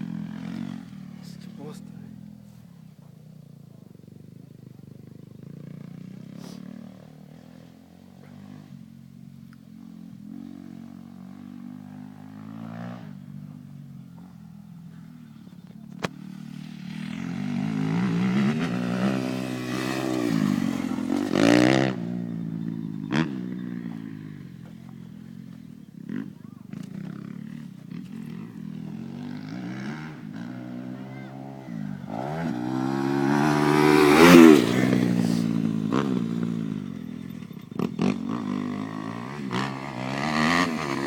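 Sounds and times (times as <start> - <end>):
motocross bike engine revving: 0.0 - 2.3, 16.0 - 41.0.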